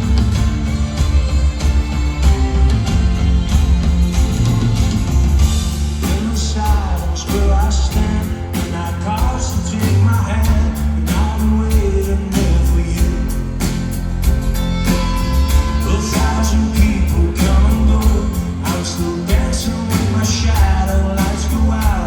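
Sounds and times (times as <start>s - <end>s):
drum beat: 0.0s - 19.9s, 20.6s - 22.0s
live rock band playing: 0.0s - 22.0s
person singing: 15.6s - 22.0s.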